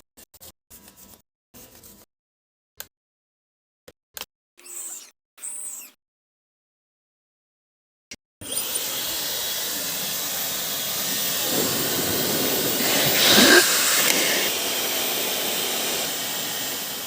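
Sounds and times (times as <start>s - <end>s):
hair dryer running: 8.4s - 17.0s.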